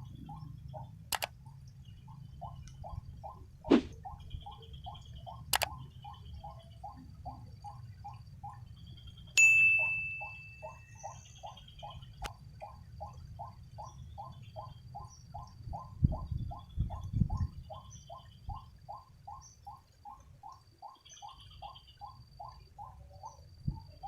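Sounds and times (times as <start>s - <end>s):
click: 1.1s - 1.3s, 5.5s - 5.8s, 12.2s - 12.4s
metallic ding ringing: 9.4s - 11.0s.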